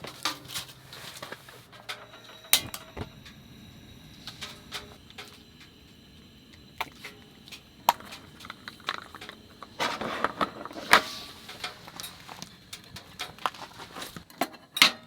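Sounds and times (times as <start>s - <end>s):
cooking gear clicks and knocks: 0.0s - 3.4s, 6.6s - 15.0s.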